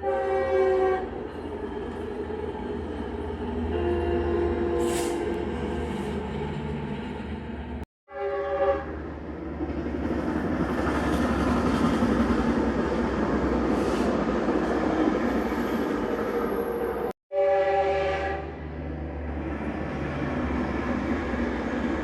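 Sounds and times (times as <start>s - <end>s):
train air horn blast: 0.0s - 1.1s, 3.7s - 5.4s, 8.1s - 9.0s, 17.3s - 18.6s
passing train rumble: 0.0s - 22.0s.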